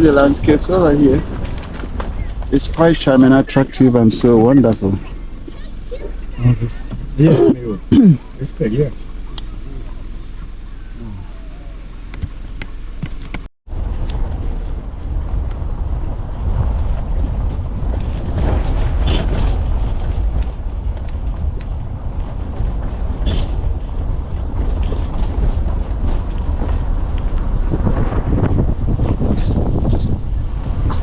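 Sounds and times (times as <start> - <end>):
wind buffeting microphone: 13.7 - 31.0.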